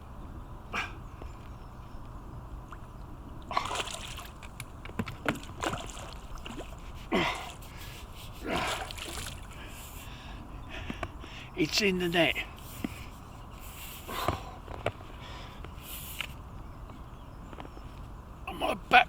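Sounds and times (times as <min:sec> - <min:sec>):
fish splashing in water: 0:03.4 - 0:06.8, 0:08.5 - 0:09.5.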